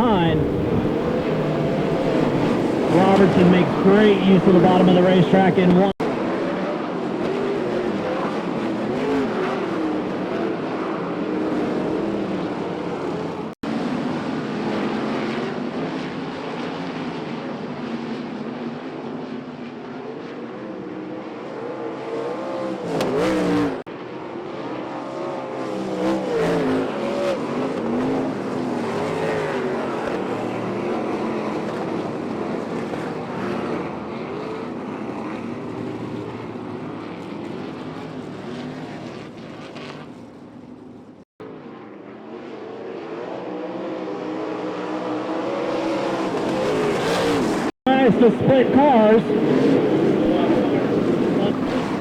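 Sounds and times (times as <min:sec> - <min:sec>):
race car engines revving: 0:00.0 - 0:41.0, 0:41.7 - 0:52.0.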